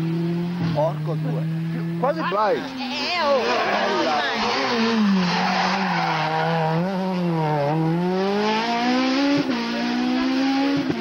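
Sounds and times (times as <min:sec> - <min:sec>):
rally car engine under load: 0:00.0 - 0:11.0.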